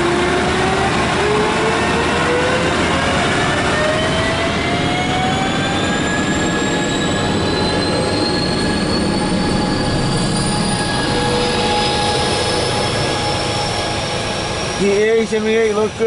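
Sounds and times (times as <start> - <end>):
train rumbling on rails: 0.0 - 16.0
whining tones rising in pitch: 0.0 - 16.0.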